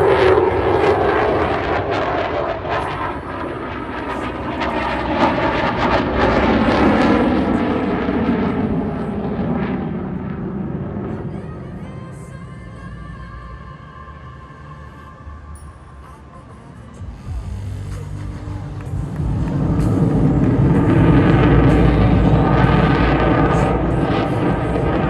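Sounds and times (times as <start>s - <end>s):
fighter jet engine roar: 0.0s - 11.8s, 17.3s - 25.0s.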